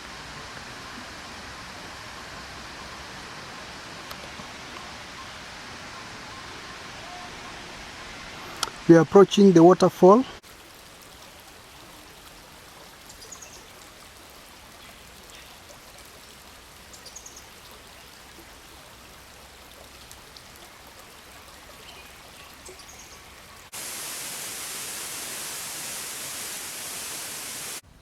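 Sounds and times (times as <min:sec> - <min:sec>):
stream and waterfall rushing: 0:00.0 - 0:12.9, 0:20.7 - 0:27.8.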